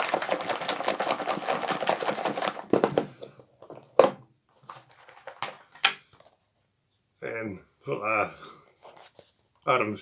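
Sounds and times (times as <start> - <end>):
salad rattling in plastic box: 0.0 - 3.2
plastic box knocks and clicks: 0.0 - 4.2.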